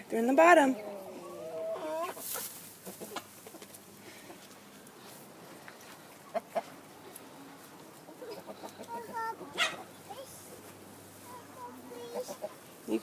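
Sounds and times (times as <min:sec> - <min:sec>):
hens clucking: 0:00.4 - 0:13.0
sharp hen clucks: 0:00.8 - 0:03.7, 0:06.2 - 0:06.8, 0:08.1 - 0:10.0, 0:12.0 - 0:12.6.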